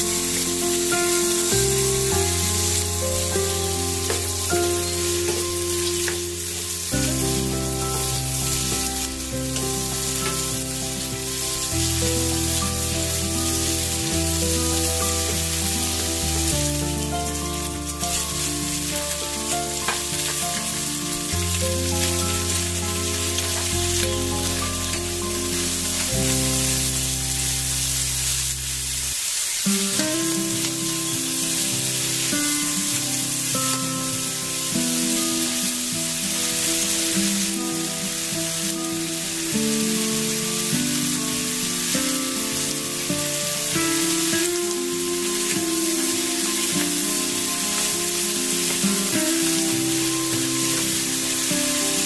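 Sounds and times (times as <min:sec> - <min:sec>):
background music with chords: 0:00.0 - 0:29.0
meat sizzling in oil: 0:00.0 - 0:52.0.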